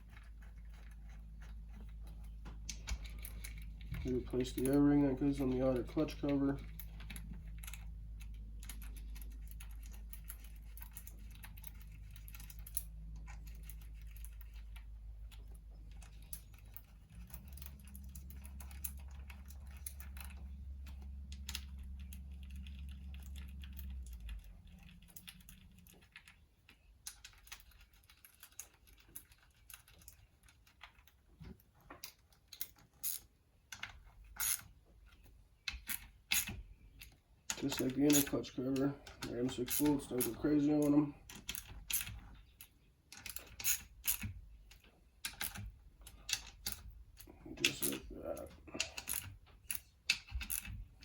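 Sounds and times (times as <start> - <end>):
metallic clicks of hand tools: 35.7 - 50.8
steady low hum: 45.7 - 49.8.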